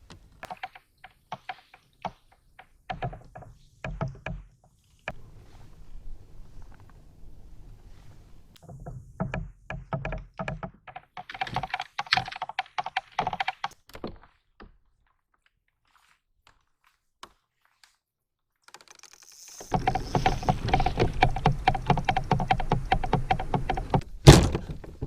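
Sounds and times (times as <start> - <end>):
rapid knocks and taps: 0.0 - 4.8, 8.6 - 14.2, 19.6 - 24.5.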